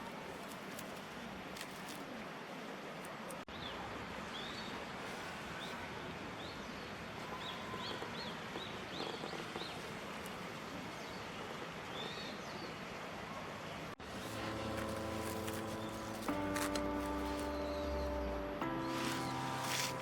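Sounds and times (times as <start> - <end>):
steady background hiss: 13.7 - 20.0.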